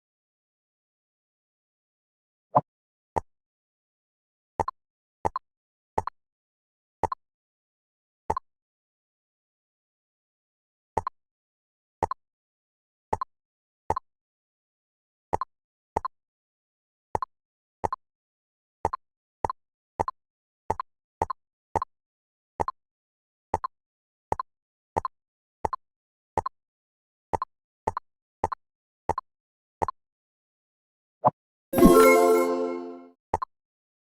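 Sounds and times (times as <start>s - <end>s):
pop sound effects: 31.8s - 33.0s.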